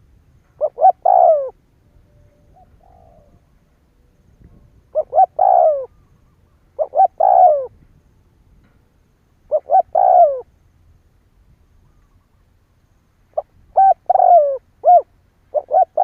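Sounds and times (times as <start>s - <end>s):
dove cooing: 0.5s - 7.8s, 9.5s - 10.5s, 13.3s - 16.0s.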